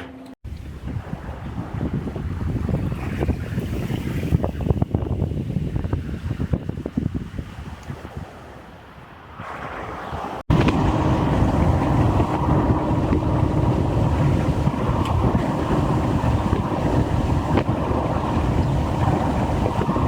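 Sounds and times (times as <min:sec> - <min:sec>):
wind buffeting microphone: 0:00.4 - 0:20.0
moving vehicle rumble: 0:09.5 - 0:20.0.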